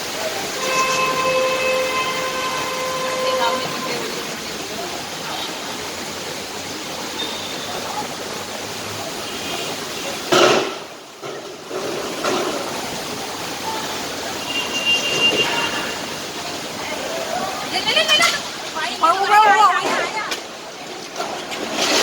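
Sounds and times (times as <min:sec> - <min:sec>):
loud splash: 0:00.0 - 0:22.0
rushing floodwater roar: 0:00.0 - 0:22.0.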